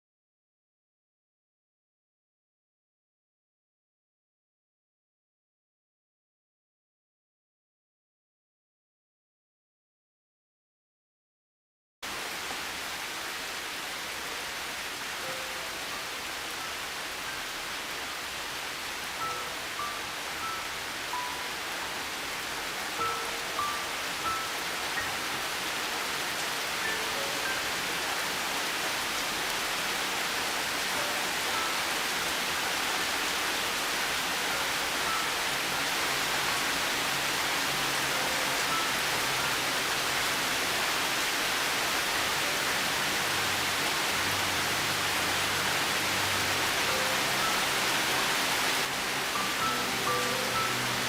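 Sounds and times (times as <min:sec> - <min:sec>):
rain hiss: 0:12.0 - 0:51.0
soft slow piano music: 0:15.1 - 0:18.3, 0:19.0 - 0:28.9, 0:30.8 - 0:32.7, 0:33.3 - 0:41.1, 0:41.8 - 0:51.0.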